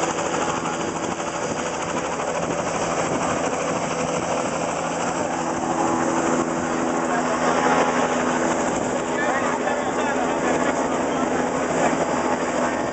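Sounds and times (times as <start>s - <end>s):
helicopter engine and rotor: 0.0s - 12.9s.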